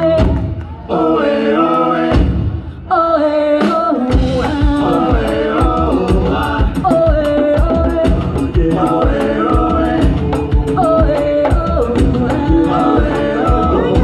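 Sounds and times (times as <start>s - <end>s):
live band playing latin song: 0.0s - 2.8s, 3.5s - 14.0s
steady drum beat: 2.1s - 2.6s, 3.6s - 14.0s
person singing: 2.8s - 14.0s.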